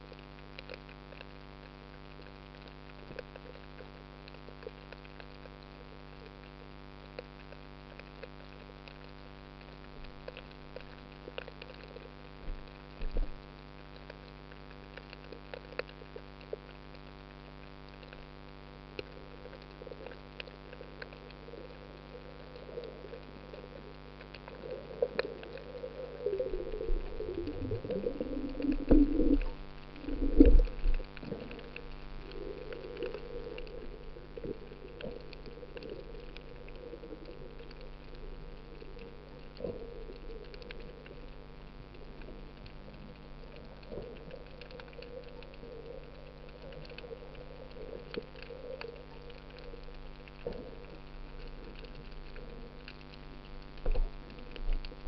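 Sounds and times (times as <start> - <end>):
muffled water sounds: 0.0 - 55.0
low hum: 19.0 - 55.0.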